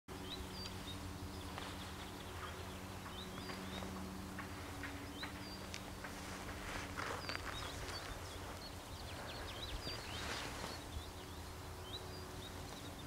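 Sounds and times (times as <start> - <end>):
faint low hum: 0.1 - 13.0
small songbirds chirping: 0.1 - 13.0.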